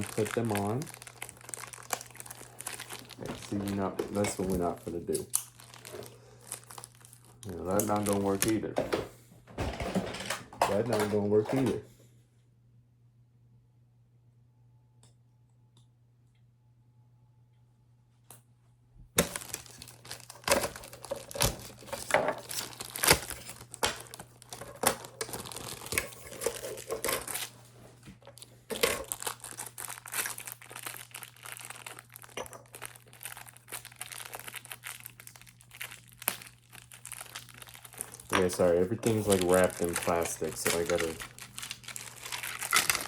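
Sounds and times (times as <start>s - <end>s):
plastic wrapping crinkling: 0.0s - 8.7s, 19.2s - 43.0s.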